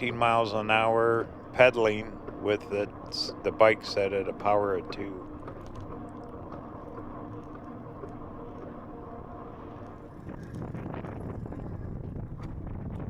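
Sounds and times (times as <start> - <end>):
faint steady hum: 0.0 - 13.0
bike tyres rolling on trail: 5.2 - 13.0
wind on microphone: 9.6 - 13.0.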